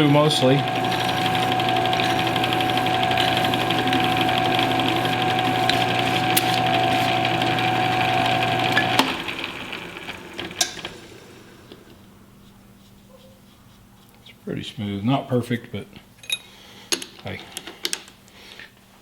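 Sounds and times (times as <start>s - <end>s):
file on spinning metal: 0.0s - 9.7s
lathe motor running: 0.0s - 12.1s.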